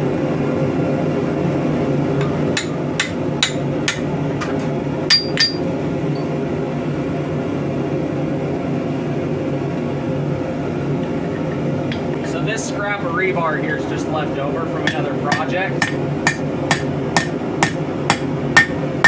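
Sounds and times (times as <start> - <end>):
low background hum: 0.0 - 19.0
hammer striking metal: 2.2 - 6.3, 14.9 - 18.8.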